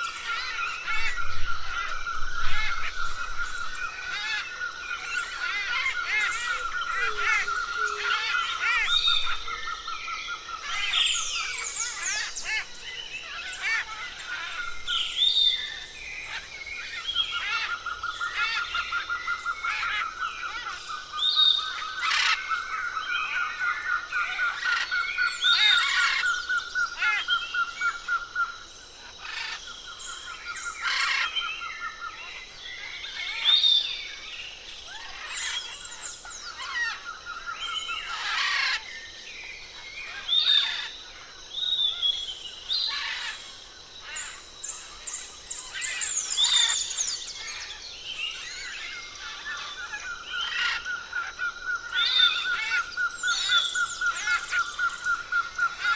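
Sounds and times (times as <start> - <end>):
birds whistling and chirping: 0.0 - 41.0, 41.6 - 55.9.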